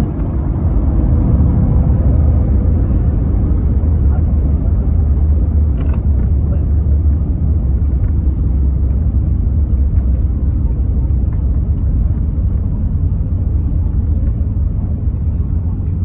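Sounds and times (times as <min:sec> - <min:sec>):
airliner cabin low rumble: 0:00.0 - 0:16.0.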